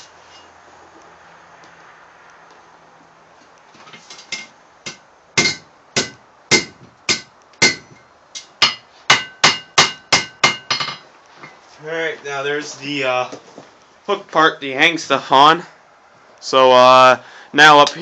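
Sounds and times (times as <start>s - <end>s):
hammer striking steel on anvil: 4.3s - 11.0s.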